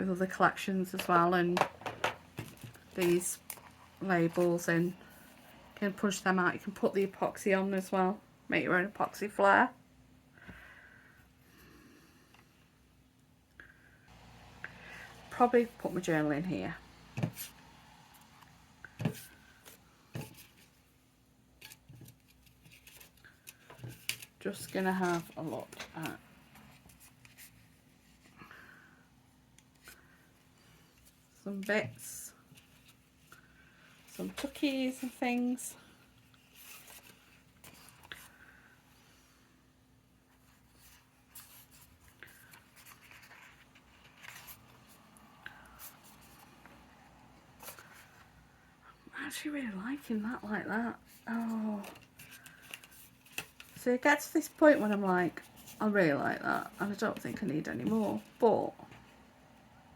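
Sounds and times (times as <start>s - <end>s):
paper rustling: 40.4s - 45.1s, 51.1s - 58.5s.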